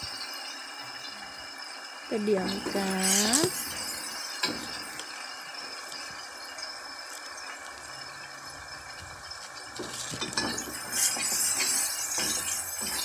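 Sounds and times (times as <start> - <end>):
paste sizzling in hot oil: 0.0 - 13.0
metal spoon scraping wok: 9.8 - 13.0.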